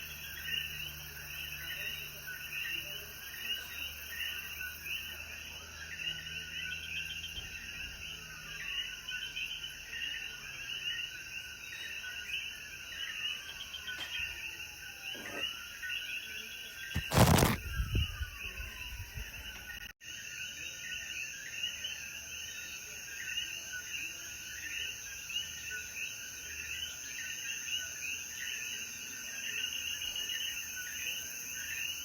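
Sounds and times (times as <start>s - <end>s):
frogs chirping in chorus: 0.0s - 32.0s
insects hissing: 16.5s - 19.4s.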